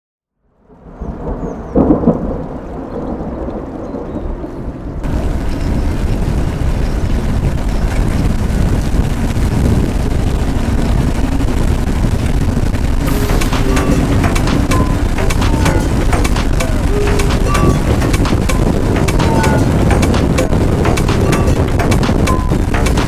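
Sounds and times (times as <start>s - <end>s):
rain noise on microphone: 0.4s - 23.0s
wind buffeting microphone: 0.9s - 23.0s
loud bumps: 12.9s - 23.0s.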